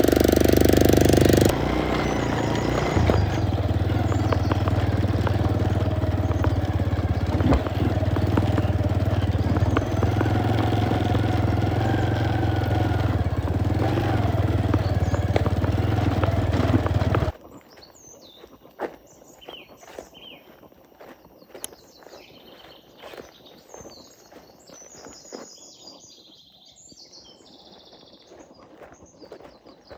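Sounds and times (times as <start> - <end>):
motorcycle engine running: 0.0 - 17.4
bird chirps: 0.1 - 20.6.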